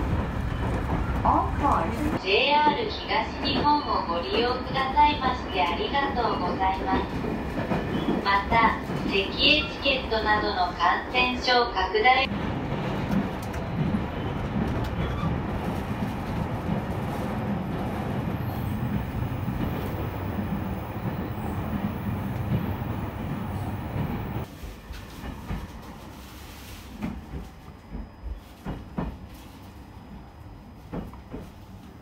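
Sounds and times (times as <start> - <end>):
train running rumble: 12.2 - 25.8.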